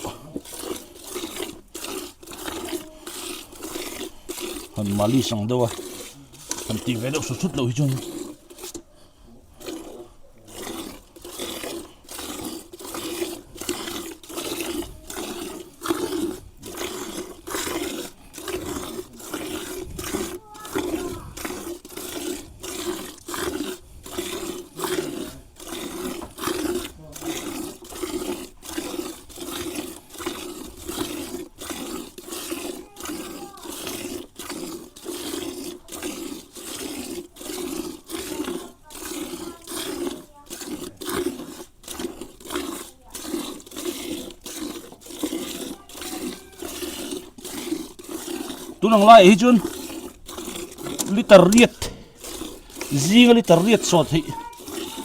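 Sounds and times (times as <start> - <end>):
milk squirting into a pail: 0.0 - 55.0.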